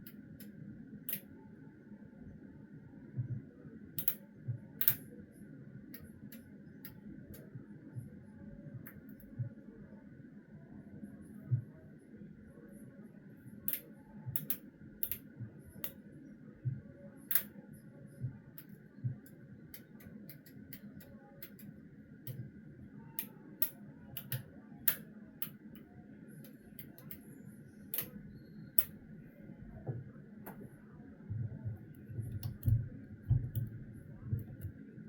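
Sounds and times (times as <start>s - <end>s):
faint steady hum: 0.0s - 35.0s
light clicks and taps: 23.1s - 27.3s, 31.7s - 34.8s.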